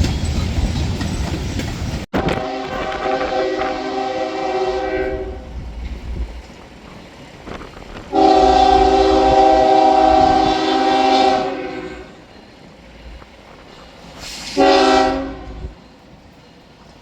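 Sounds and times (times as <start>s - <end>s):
train rumbling: 0.0s - 17.0s
locomotive air horn: 2.2s - 5.5s, 8.1s - 12.2s, 14.2s - 15.8s.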